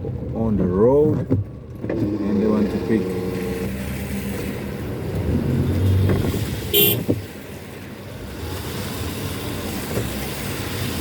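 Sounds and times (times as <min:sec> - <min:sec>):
car engine: 0:00.0 - 0:11.0
road rumble: 0:00.0 - 0:11.0
car horn toot: 0:06.7 - 0:07.1.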